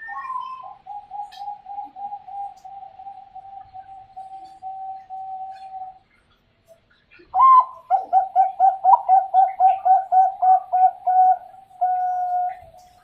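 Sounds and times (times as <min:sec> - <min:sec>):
dove cooing: 0:00.0 - 0:06.0, 0:07.3 - 0:13.0.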